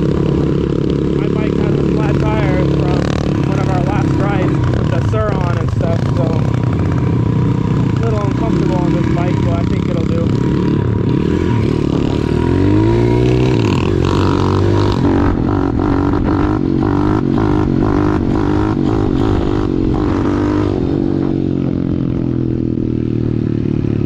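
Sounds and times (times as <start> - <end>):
pit bike engine revving: 0.0 - 24.0.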